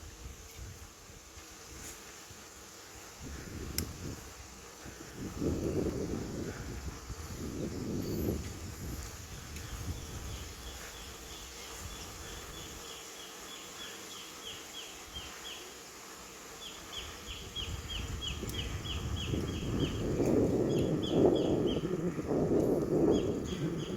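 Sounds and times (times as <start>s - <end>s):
wind rumble on microphone: 3.1s - 12.8s, 17.0s - 23.9s.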